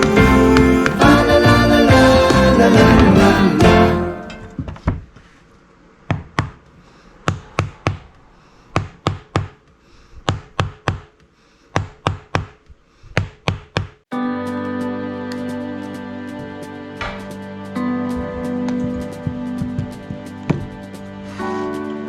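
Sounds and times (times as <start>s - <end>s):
background music: 0.0s - 4.7s, 14.1s - 22.0s.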